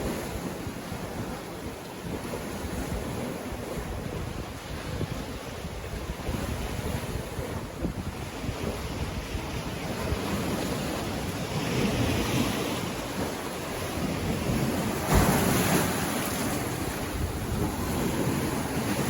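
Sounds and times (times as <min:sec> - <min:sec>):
surf washing on beach: 0:00.0 - 0:19.0
wind buffeting microphone: 0:00.0 - 0:19.0
wave crashing: 0:09.9 - 0:19.0.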